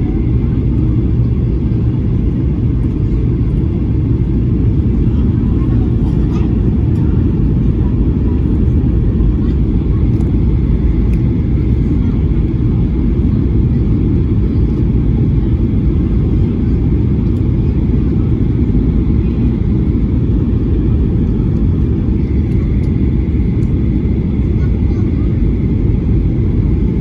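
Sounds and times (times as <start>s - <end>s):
airliner cabin engine rumble: 0.0s - 27.0s.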